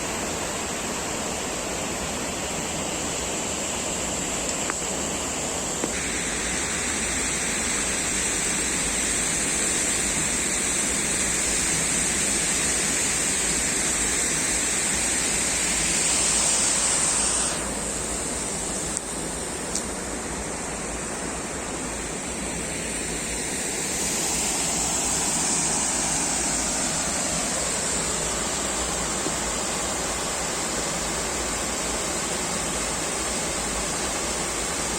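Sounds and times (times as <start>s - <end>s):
waterfall rushing: 21.6s - 32.4s.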